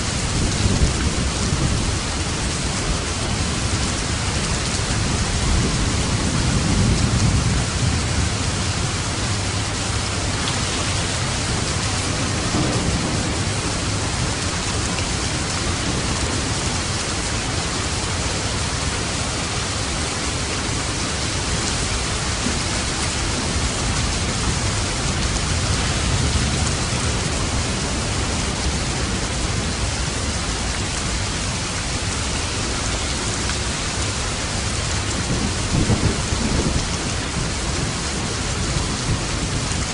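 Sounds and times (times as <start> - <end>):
heavy rain: 0.0 - 39.9
thunder rumbling: 0.1 - 39.9.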